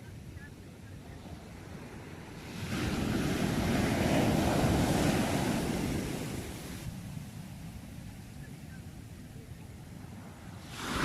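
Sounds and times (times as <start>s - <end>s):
sea wave breaking: 2.4s - 6.9s, 10.5s - 11.0s.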